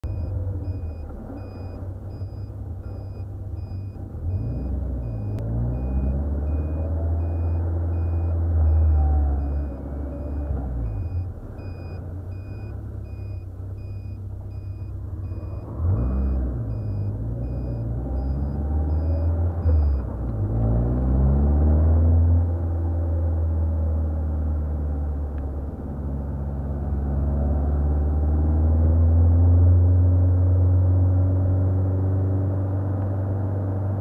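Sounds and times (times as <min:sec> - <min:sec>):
car engine revving: 0:14.6 - 0:34.0.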